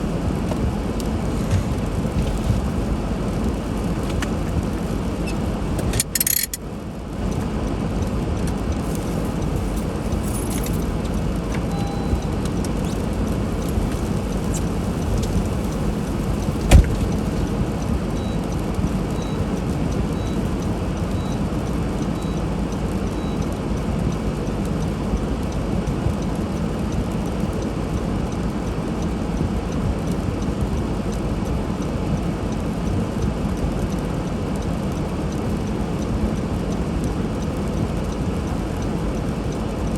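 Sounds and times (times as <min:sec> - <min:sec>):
car tyres driving through snow: 0:00.0 - 0:23.0
thump: 0:16.7 - 0:17.0.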